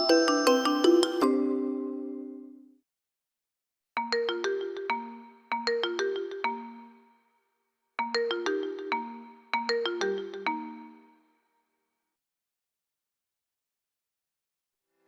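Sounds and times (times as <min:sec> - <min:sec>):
phone ringtone melody: 0:00.0 - 0:02.5.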